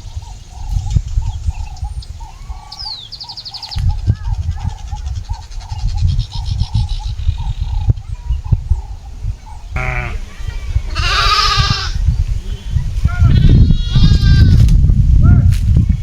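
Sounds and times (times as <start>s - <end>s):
bird chirping: 0.0s - 13.2s
goat bleating: 9.8s - 12.0s, 13.1s - 14.6s.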